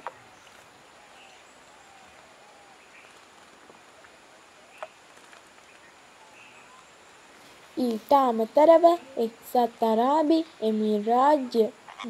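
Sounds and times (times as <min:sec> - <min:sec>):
distant bird chirps: 0:00.0 - 0:12.0.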